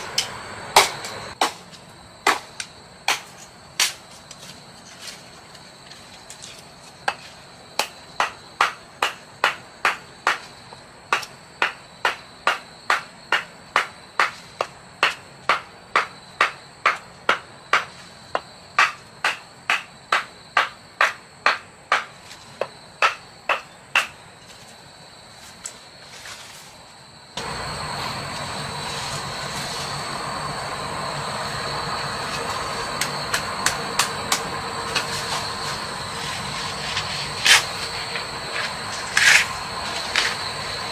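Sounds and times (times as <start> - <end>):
high-pitched insect drone: 24.5 - 40.9.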